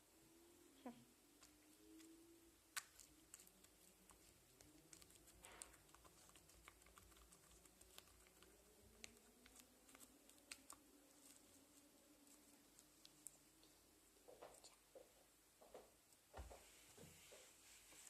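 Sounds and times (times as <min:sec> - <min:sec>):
slime being kneaded by hand: 0:01.4 - 0:13.5.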